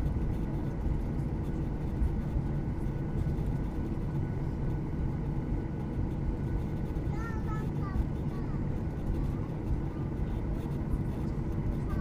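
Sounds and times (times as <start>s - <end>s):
airplane cabin drone: 0.0s - 12.0s.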